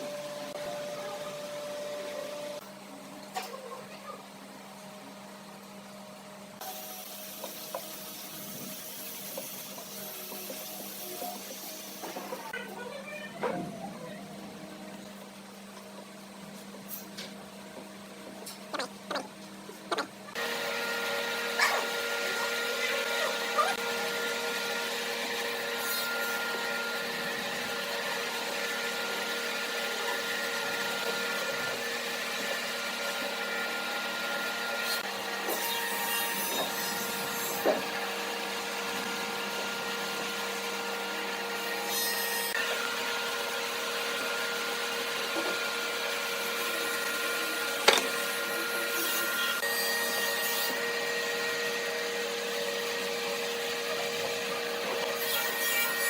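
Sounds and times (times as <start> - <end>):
electric power tool running: 20.3 - 56.0.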